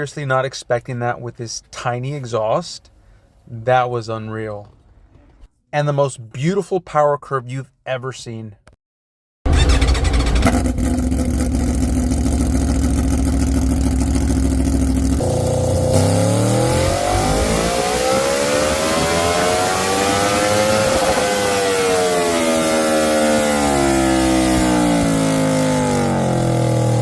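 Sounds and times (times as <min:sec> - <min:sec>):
motorcycle engine revving: 0:09.6 - 0:27.0.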